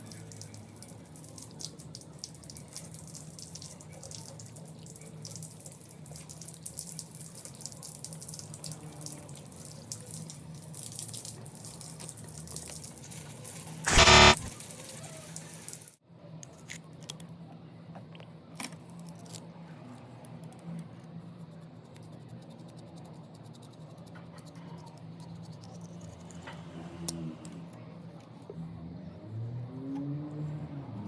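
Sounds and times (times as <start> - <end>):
loud buzzing tone: 13.9 - 14.5.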